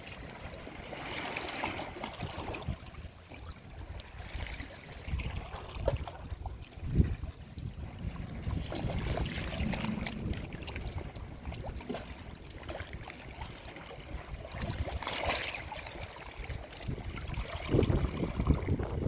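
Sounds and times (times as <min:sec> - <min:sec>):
sea waves washing on shore: 0:00.0 - 0:19.0
steady low rumble: 0:07.0 - 0:12.6.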